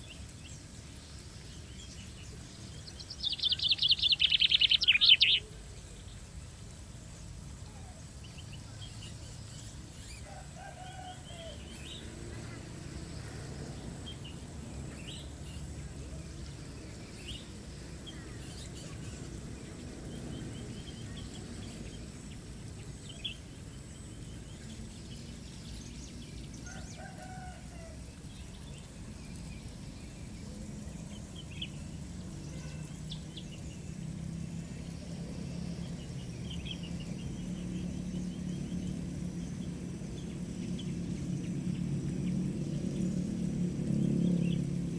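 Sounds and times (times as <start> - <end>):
birds chirping and trilling: 0.0 - 6.3, 7.7 - 44.9
low background rumble: 19.4 - 44.9.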